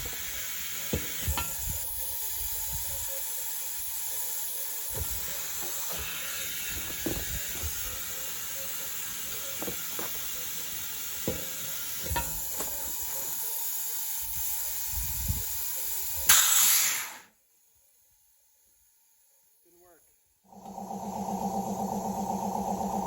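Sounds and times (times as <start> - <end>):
compressed air hissing: 0.0 - 17.3.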